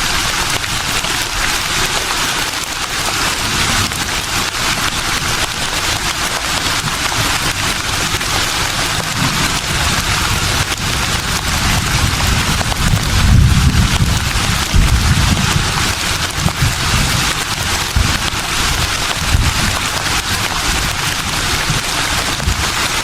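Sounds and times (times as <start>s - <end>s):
wind gust rumble: 9.2s - 19.8s.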